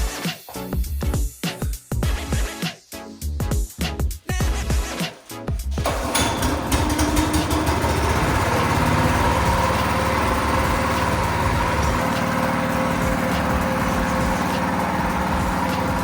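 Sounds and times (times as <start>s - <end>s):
go-kart engine running: 5.7s - 16.0s.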